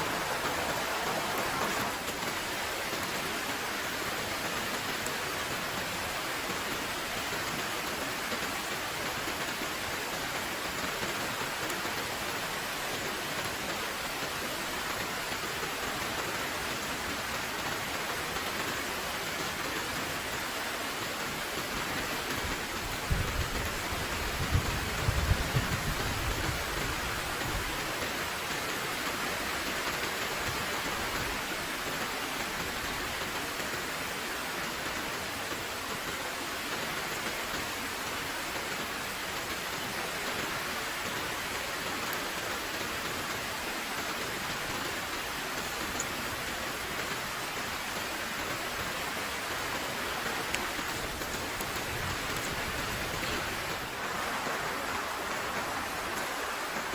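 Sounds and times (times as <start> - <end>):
heavy rain falling: 0.0 - 56.9.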